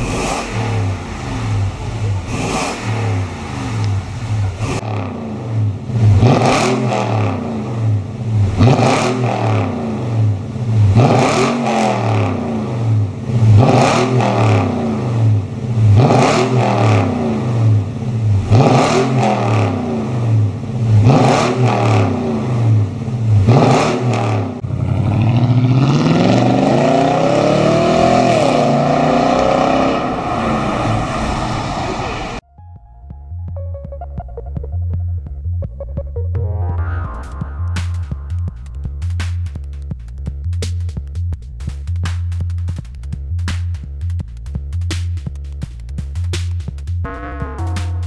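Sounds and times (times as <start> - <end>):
pickup engine revving: 0.0 - 32.4.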